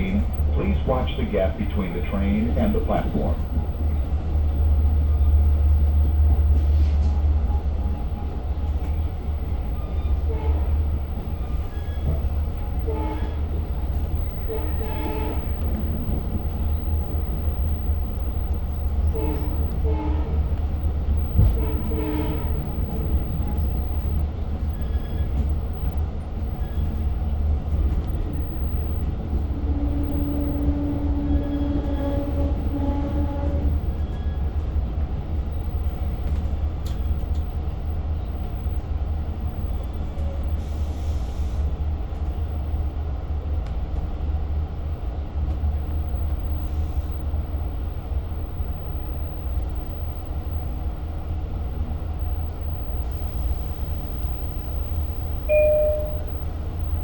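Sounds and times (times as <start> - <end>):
diesel train rumble: 0.0 - 57.0
muffled train horn: 9.8 - 11.3, 12.0 - 17.4, 18.0 - 24.2, 29.4 - 34.0.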